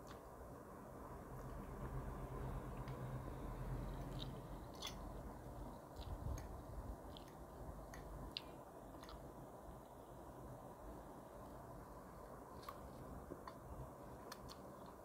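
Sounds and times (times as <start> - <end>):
person chewing spaghetti: 3.9 - 9.4
wet mouth clicks: 4.0 - 5.2.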